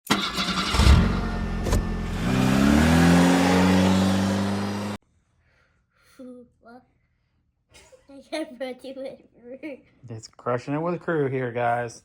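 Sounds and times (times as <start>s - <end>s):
large engine revving: 0.1s - 5.0s.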